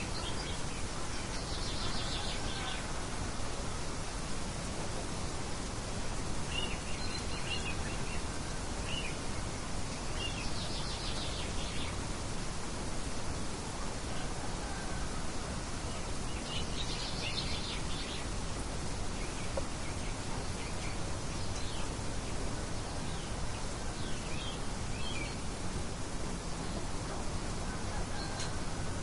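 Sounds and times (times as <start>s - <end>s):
small birds chirping: 0.0s - 2.9s, 6.4s - 13.5s, 15.8s - 27.2s
light wind: 0.0s - 29.0s.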